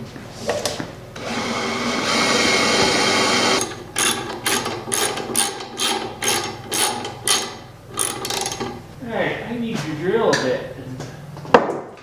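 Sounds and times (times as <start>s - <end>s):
tool whirring: 1.2s - 8.8s.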